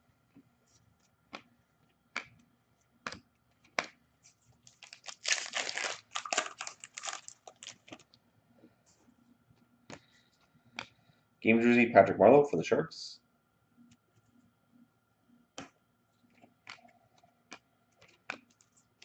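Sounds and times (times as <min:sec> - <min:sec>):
foil wrapper crinkling and tearing: 0:04.6 - 0:08.0.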